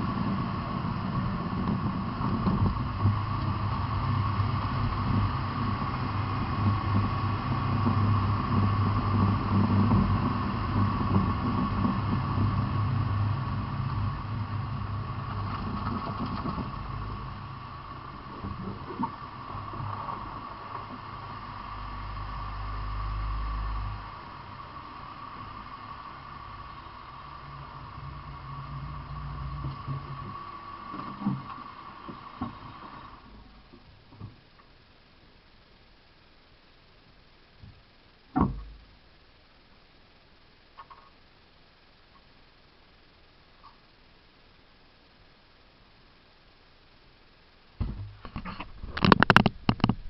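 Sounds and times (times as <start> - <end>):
vehicle engine rumbling: 0.0 - 35.6
constant high whine: 0.0 - 50.0.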